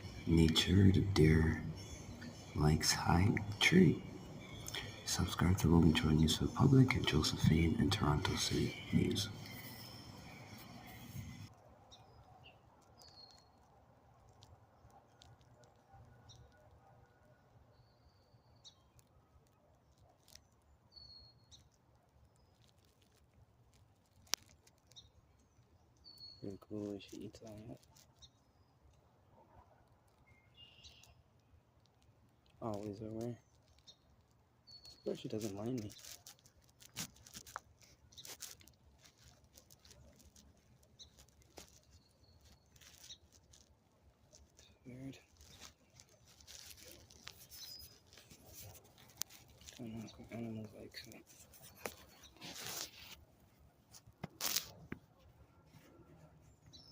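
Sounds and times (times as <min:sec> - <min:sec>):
faint clicks: 0:00.0 - 0:11.7, 0:21.5 - 0:25.2
faint high bird chirps: 0:00.0 - 0:13.6, 0:20.3 - 0:21.8, 0:24.9 - 0:28.9, 0:30.2 - 0:31.3, 0:33.0 - 0:36.3, 0:44.6 - 0:52.9
light rustles: 0:32.0 - 0:56.9.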